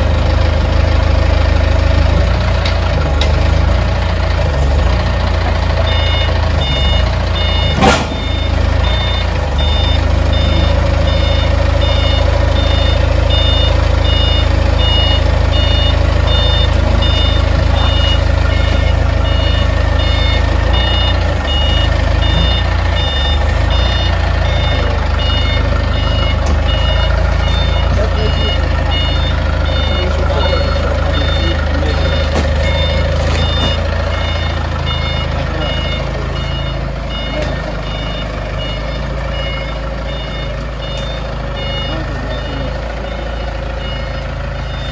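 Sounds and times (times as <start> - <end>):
diesel engine running: 0.0 - 44.9
reversing alarm beeping: 0.0 - 44.9
sharp crack: 7.8 - 8.4.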